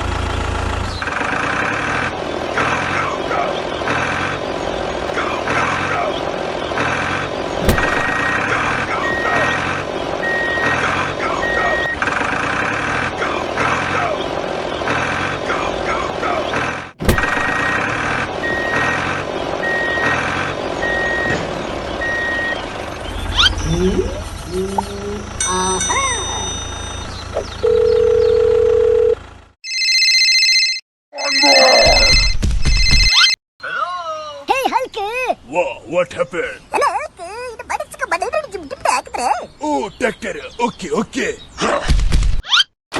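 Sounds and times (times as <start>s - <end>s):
loud rhythmic pulsing: 7.6s - 12.0s
vehicle reversing alarm beeping: 7.6s - 13.0s, 17.0s - 29.8s.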